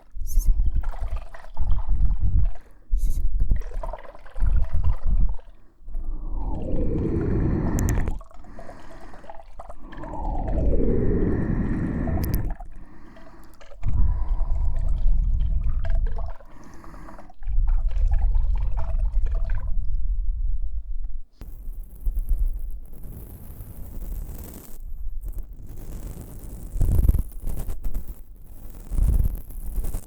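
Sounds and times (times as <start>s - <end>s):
gurgling pitch sweeps: 3.6s - 16.4s
close rumbling and rubbing: 4.4s - 17.8s.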